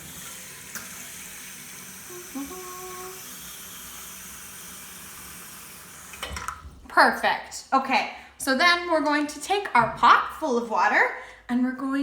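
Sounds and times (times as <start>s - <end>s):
tap water filling pot: 0.0s - 6.8s
person humming: 2.0s - 3.2s.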